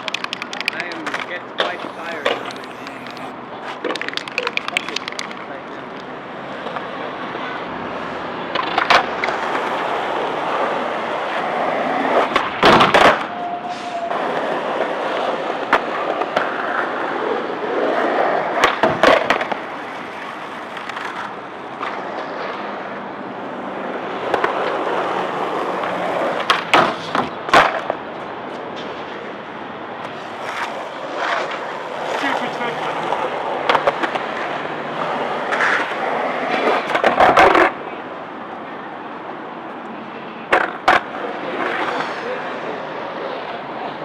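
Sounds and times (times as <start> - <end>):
skateboard clacks: 0.0 - 1.3, 24.2 - 28.0, 35.1 - 37.8, 40.5 - 42.2
skateboard rolling and grinding: 23.6 - 28.0, 28.8 - 37.8.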